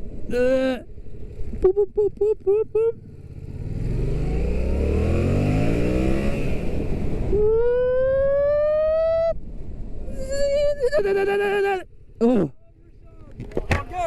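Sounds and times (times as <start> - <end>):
motorcycle engine revving: 0.0 - 10.1
rising pitched tone: 7.3 - 9.4.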